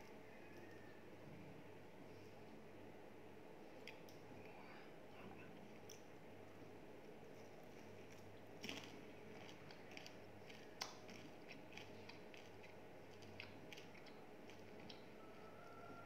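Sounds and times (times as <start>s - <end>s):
low room hum: 0.0s - 16.0s
chewing crispy food: 5.7s - 16.0s.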